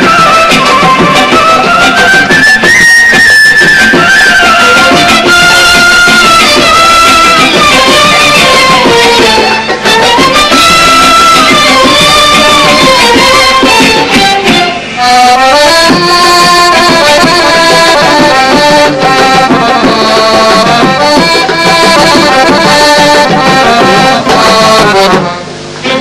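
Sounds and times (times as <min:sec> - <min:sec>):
orchestra playing instrumental melody: 0:00.0 - 0:26.0.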